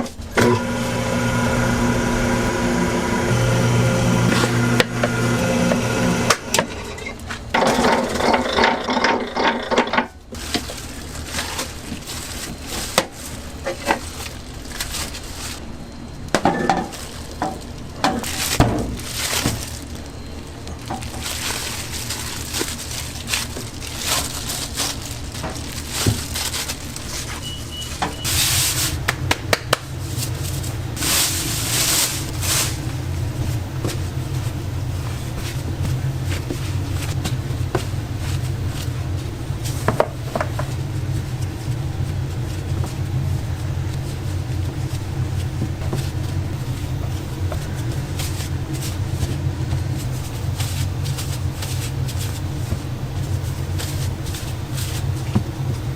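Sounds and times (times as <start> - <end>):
low machine hum: 0.0 - 55.9
kitchen clatter: 6.5 - 15.0, 16.4 - 19.6.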